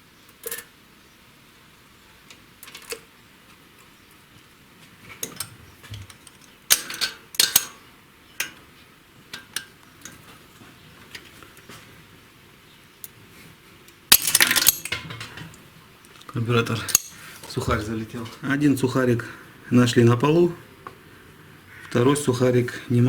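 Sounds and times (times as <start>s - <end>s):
hand tools clicking on metal: 6.1s - 7.8s, 14.1s - 15.4s, 16.1s - 17.5s.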